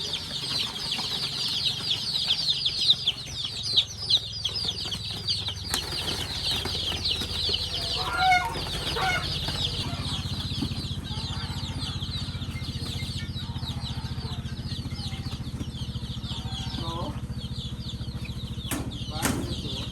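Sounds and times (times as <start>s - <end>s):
adult chicken calls: 0.0s - 17.3s
chicks peeping: 0.0s - 19.9s
steady low hum: 0.0s - 19.9s.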